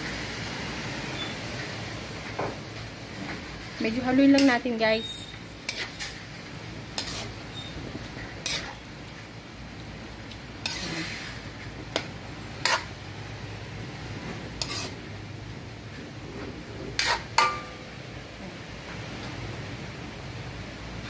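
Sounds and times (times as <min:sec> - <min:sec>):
spoon scraping wok: 0:04.2 - 0:09.3, 0:10.3 - 0:13.0, 0:14.3 - 0:15.1, 0:16.9 - 0:17.7
metal spoon clinking in wok: 0:17.0 - 0:17.8.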